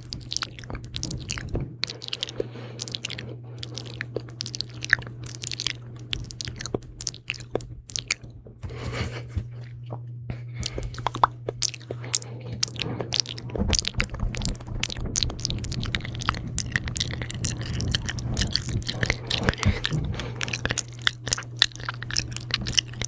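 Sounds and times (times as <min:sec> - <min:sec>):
wet mouth clicks and smacks: 0:00.0 - 0:08.2, 0:10.6 - 0:23.0
steady low hum: 0:00.0 - 0:23.0.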